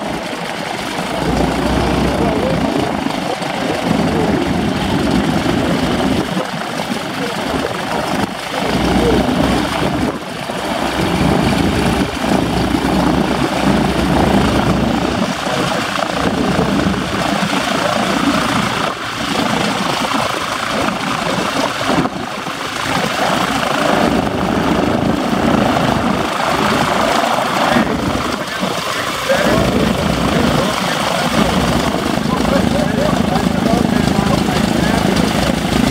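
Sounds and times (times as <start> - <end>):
biplane engine running: 0.0 - 35.9.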